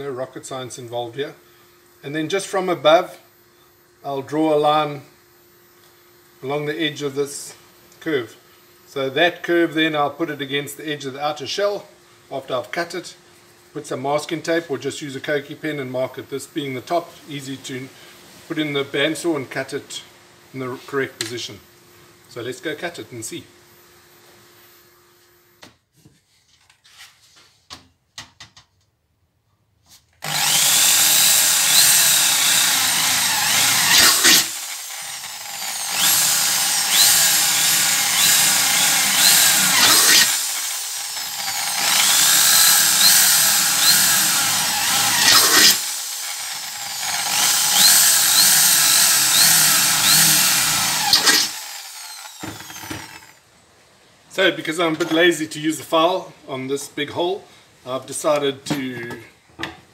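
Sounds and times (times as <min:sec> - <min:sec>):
power tool cutting metal: 0:30.2 - 0:53.4.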